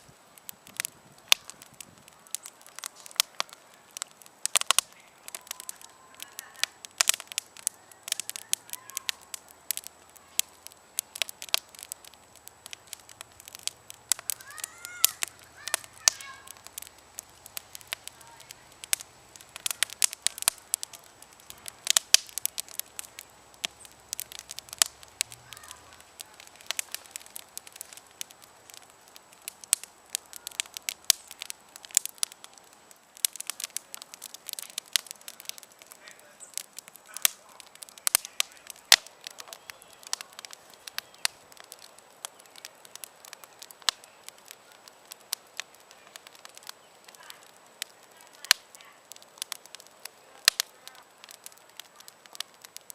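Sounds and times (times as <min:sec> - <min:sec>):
campfire crackling and popping: 0:00.0 - 0:52.9
soft fire hiss: 0:00.0 - 0:52.9.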